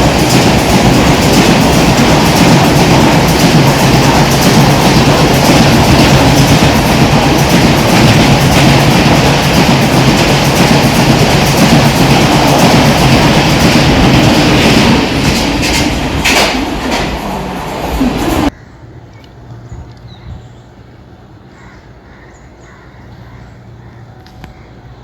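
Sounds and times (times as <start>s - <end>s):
train passing at speed: 0.0s - 18.9s.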